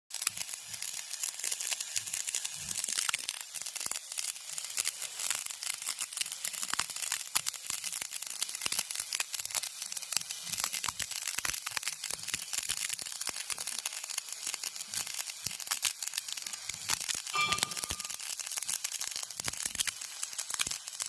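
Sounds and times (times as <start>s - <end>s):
welding arc crackling: 0.1s - 21.0s.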